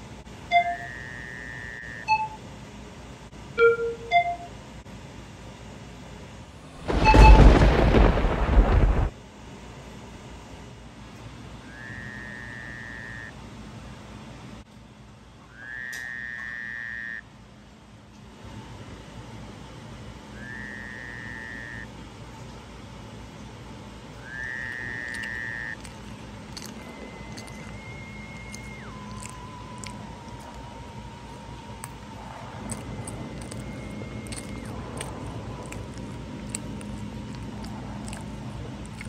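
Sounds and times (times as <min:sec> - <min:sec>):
high whistle-like tone: 0:06.9 - 0:07.7, 0:26.9 - 0:33.0.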